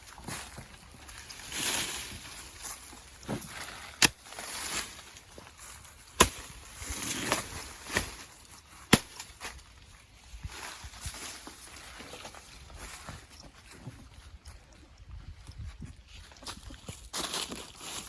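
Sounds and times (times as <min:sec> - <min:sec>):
plants rustling: 0:00.0 - 0:14.4
sharp chopping blows: 0:08.9 - 0:09.3.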